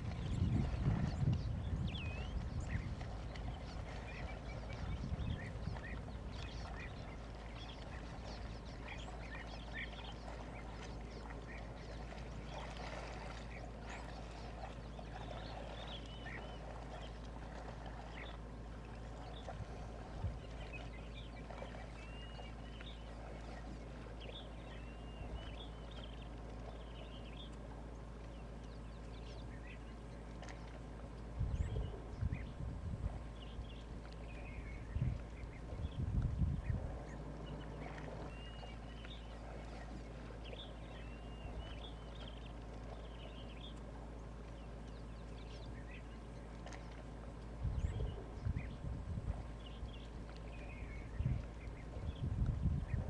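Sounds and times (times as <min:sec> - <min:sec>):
steady low rumble: 0:00.0 - 0:53.0
birds chirping and calling: 0:00.1 - 0:18.4, 0:33.2 - 0:47.0.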